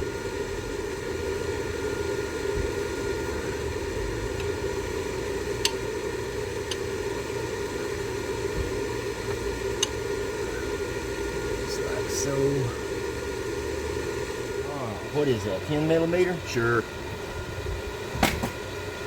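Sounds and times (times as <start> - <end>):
steady hiss and hum: 0.0 - 19.0.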